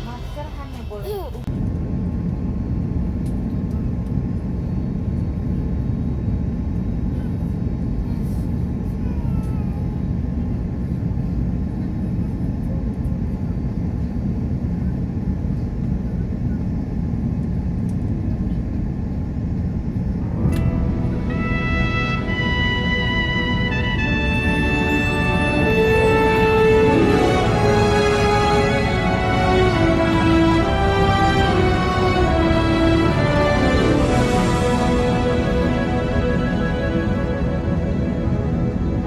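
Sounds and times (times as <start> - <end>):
airliner engine rumble in cabin: 0.0 - 24.6.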